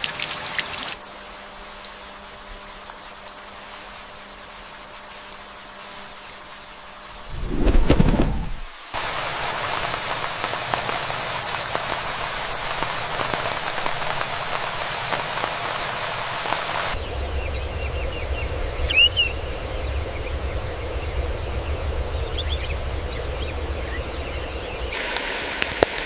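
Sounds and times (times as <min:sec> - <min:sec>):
heavy rain: 0:08.7 - 0:26.0
low steady rumble: 0:17.0 - 0:24.9.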